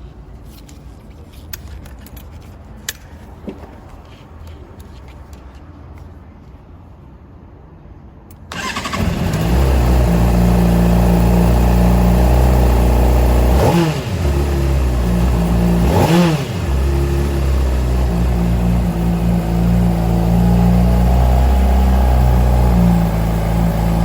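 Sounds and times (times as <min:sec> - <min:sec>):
engine revving: 0:08.5 - 0:24.0
motorcycle engine idling: 0:08.6 - 0:24.0.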